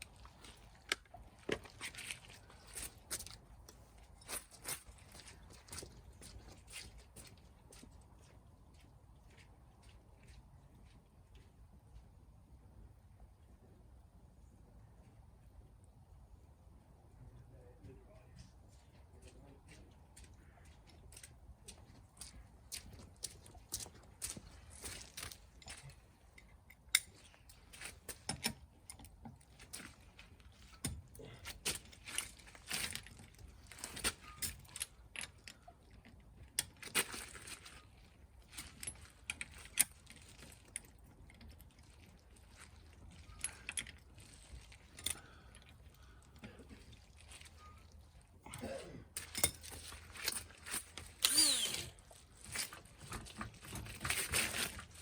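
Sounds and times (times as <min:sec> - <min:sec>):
metal tools clinking and knocking: 0:49.1 - 0:54.9
power tool whirring: 0:51.2 - 0:52.0.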